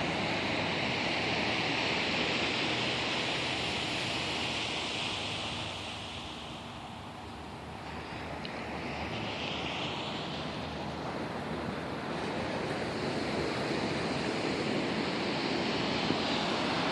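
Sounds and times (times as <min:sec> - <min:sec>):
ocean surf breaking: 0:00.0 - 0:16.9
wind on microphone: 0:00.0 - 0:16.9.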